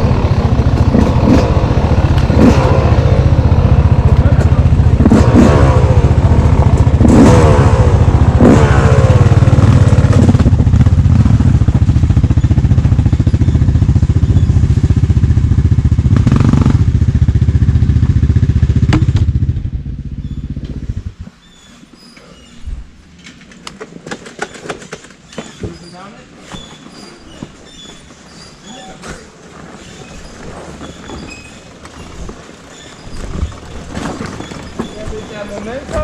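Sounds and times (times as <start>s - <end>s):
dirt bike engine revving: 0.0s - 21.2s.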